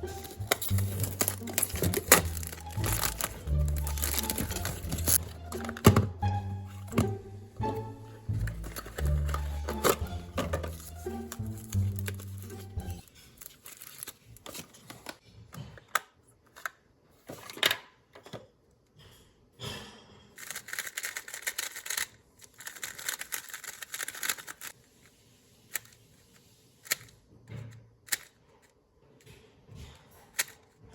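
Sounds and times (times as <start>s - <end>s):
crackly packaging rustling: 0.0s - 5.9s, 8.4s - 15.2s, 20.4s - 24.8s.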